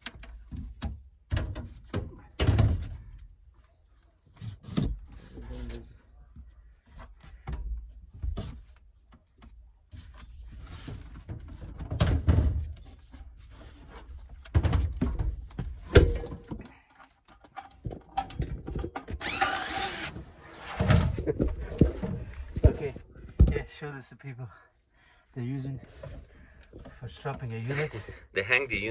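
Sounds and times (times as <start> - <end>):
metal panels knocking and clattering: 14.3 - 16.7.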